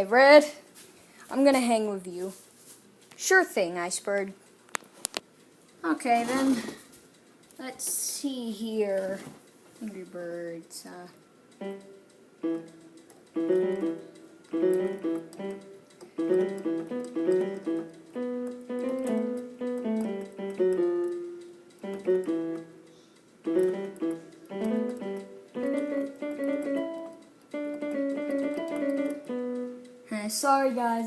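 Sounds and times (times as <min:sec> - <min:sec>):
piano notes and chords: 0:11.6 - 0:30.3.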